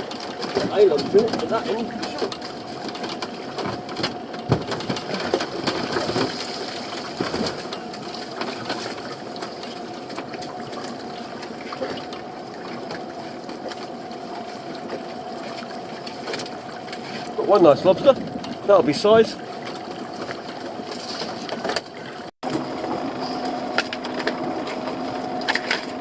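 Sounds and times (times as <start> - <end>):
boat motor whining: 0.0 - 26.0.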